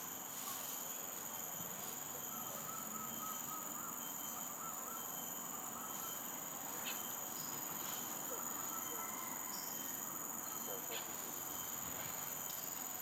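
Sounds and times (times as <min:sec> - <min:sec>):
insect chorus drone: 0:00.0 - 0:13.0
faint wavering tone: 0:02.2 - 0:10.7.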